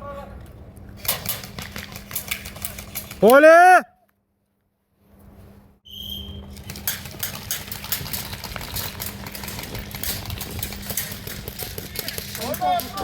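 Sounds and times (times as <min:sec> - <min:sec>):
steady low hum: 0:04.7 - 0:13.0.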